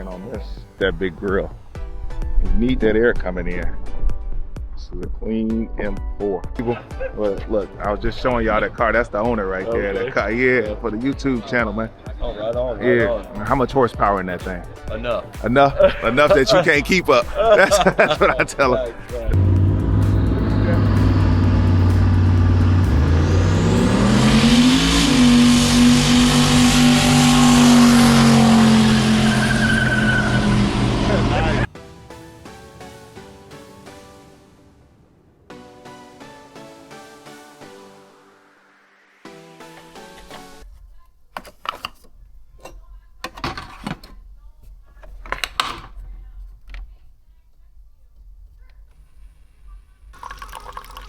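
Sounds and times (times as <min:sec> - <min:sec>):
music: 0:00.0 - 0:48.9, 0:49.7 - 0:51.0
low rumble: 0:19.2 - 0:27.6
car engine revving: 0:19.4 - 0:31.7.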